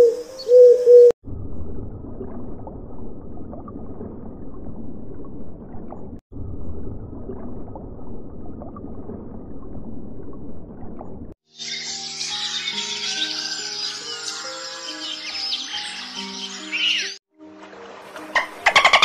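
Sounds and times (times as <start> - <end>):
underwater rumble and gurgle: 1.2 - 11.4.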